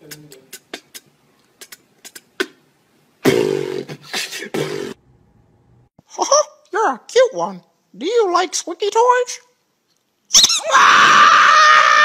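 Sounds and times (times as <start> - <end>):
buzzing breathy beatbox blast: 0.0 - 2.6, 3.2 - 5.0
beatboxing mouth clicks: 0.0 - 5.0.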